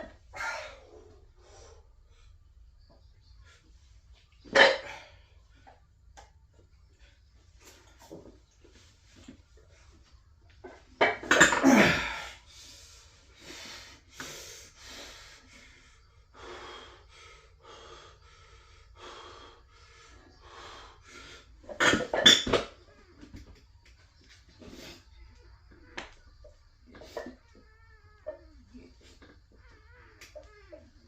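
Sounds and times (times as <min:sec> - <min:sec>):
hard rhythmic breathing: 0:12.1 - 0:21.7.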